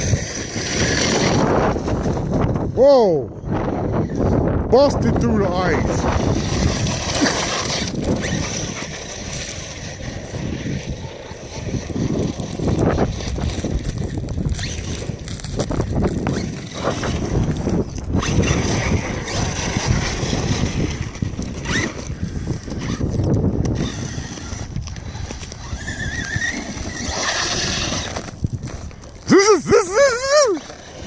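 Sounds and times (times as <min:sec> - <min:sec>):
wind buffeting microphone: 0:00.0 - 0:31.0
electric motor whining: 0:05.8 - 0:28.4.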